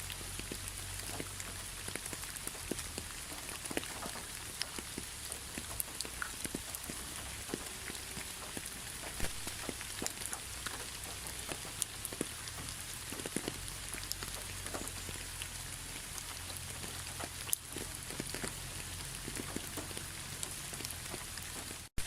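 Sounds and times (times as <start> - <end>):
rain falling: 0.0 - 22.0
raindrops ticking: 0.0 - 22.0.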